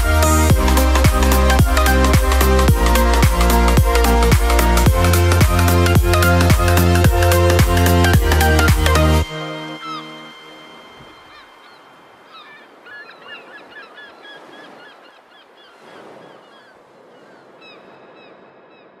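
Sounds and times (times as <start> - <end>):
faint bird chirps: 9.8 - 19.0.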